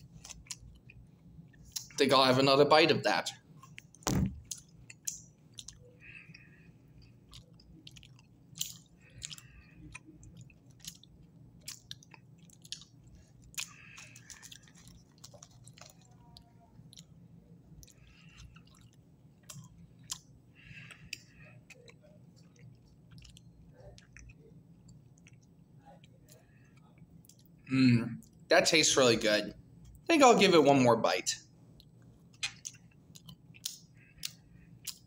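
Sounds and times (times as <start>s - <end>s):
person chewing gummy candy: 0.0s - 2.0s, 3.6s - 27.6s, 31.7s - 35.0s
wet mouth clicks: 32.4s - 35.0s.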